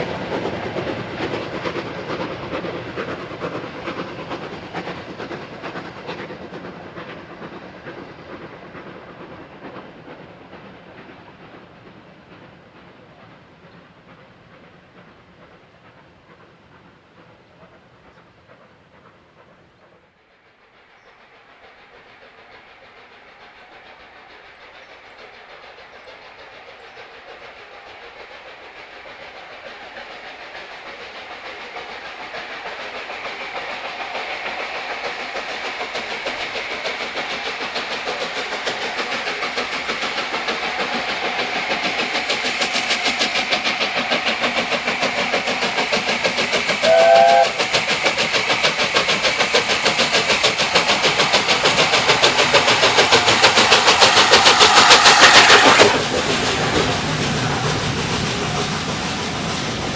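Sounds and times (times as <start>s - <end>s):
steam locomotive exhaust beats: 0.0s - 59.9s
steam locomotive whistle: 46.8s - 47.8s.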